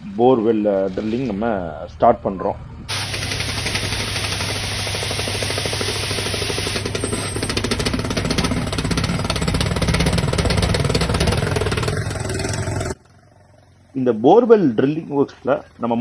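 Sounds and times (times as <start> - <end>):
drilling rig engine drone: 2.9 - 13.1.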